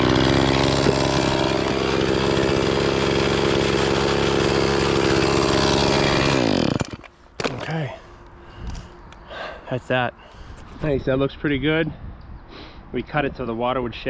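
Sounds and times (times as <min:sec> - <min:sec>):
chainsaw running: 0:00.0 - 0:07.7.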